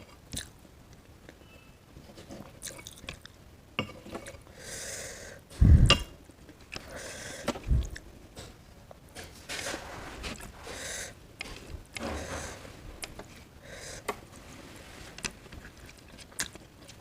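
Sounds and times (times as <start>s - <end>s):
mouth clicks and chewing: 0.3s - 0.6s, 15.2s - 17.0s
breathy hisses: 4.5s - 5.8s, 6.9s - 7.5s, 10.6s - 11.2s, 13.6s - 14.1s
dull low thumps: 5.6s - 6.1s.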